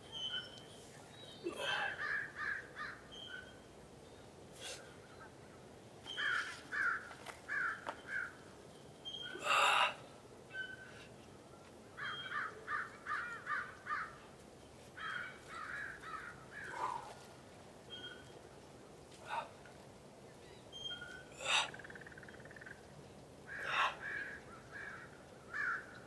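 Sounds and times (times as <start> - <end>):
bird calls: 0.1 - 4.2, 5.1 - 9.9, 10.5 - 11.1, 12.0 - 14.2, 17.9 - 18.4, 20.4 - 22.9, 23.5 - 26.0.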